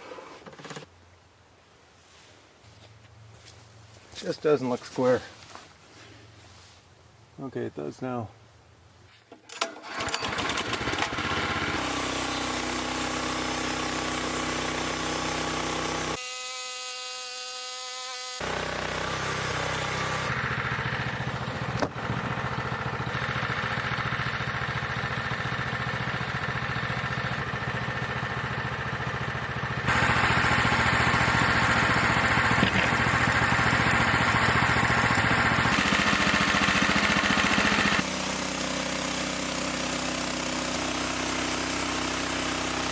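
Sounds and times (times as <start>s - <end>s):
sawmill engine running: 9.8s - 16.6s, 17.7s - 42.9s.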